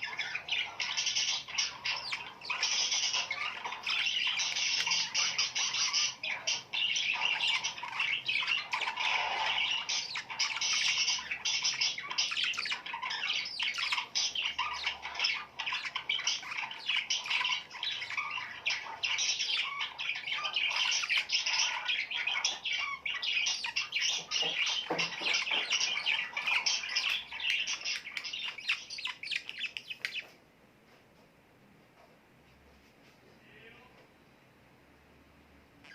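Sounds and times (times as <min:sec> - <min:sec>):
small birds chirping chorus: 0:00.0 - 0:30.5, 0:35.6 - 0:35.9.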